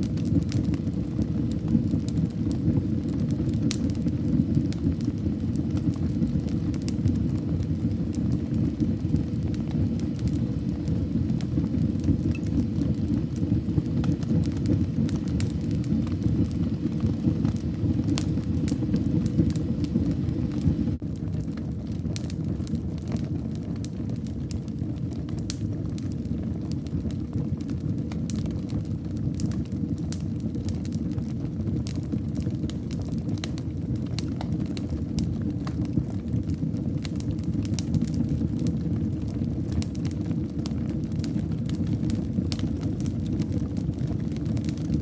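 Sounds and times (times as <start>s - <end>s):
fire crackling and popping: 0.0s - 45.0s
low rumble of flames: 0.0s - 45.0s.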